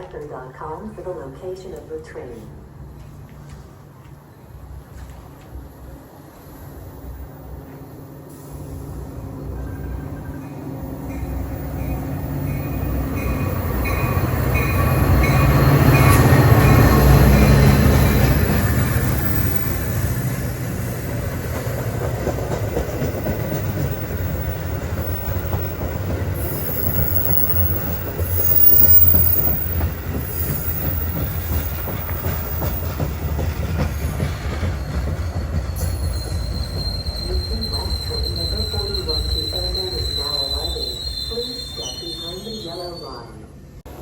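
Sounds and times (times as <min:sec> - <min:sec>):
train rumbling on rails: 0:00.0 - 0:44.0
high wheel squeal: 0:26.4 - 0:31.1, 0:35.8 - 0:43.2.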